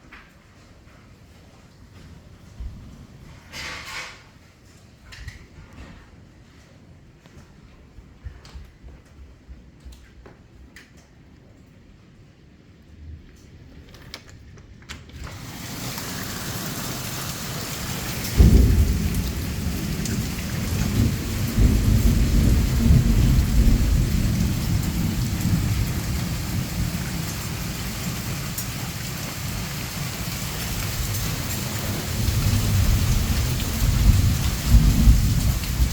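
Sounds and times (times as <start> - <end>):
heavy rain: 15.2 - 35.9
rumbling thunder: 15.4 - 35.9.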